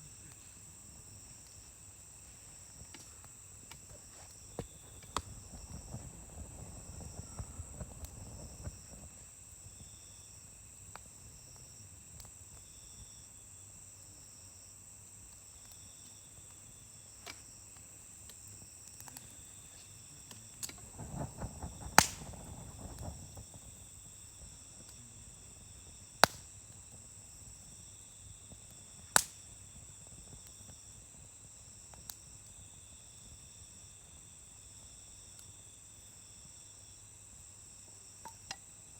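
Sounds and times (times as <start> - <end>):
crickets chirping: 0.0 - 38.9
campfire crackling: 0.1 - 14.0, 14.8 - 37.0
fire popping sharply: 20.5 - 26.5.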